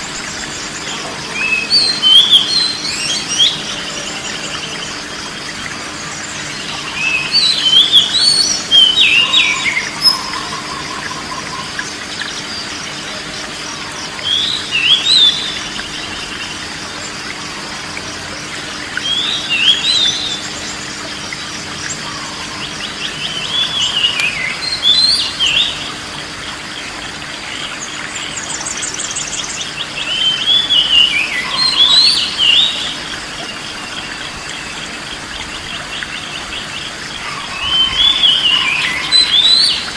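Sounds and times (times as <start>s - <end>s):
bird singing whistled phrases: 30.0s - 33.0s, 37.2s - 39.9s.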